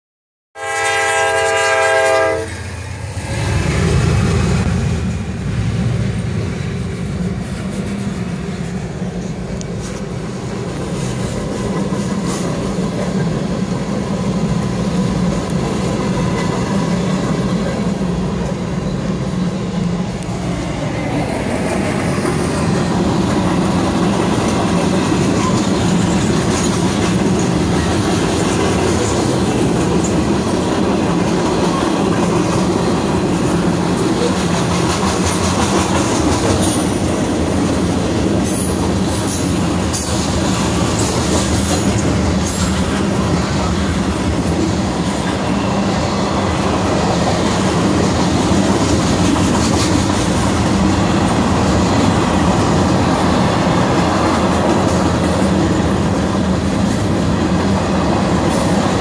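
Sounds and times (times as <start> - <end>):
train air horn: 0.6 - 2.9
freight train wheels rumbling: 0.6 - 59.0.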